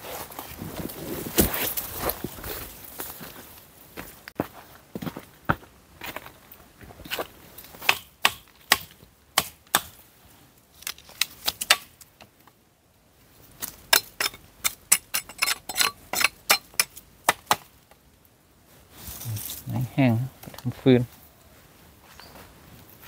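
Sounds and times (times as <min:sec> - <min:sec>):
wood being chopped: 0:07.8 - 0:10.0, 0:11.2 - 0:12.0, 0:16.2 - 0:17.7.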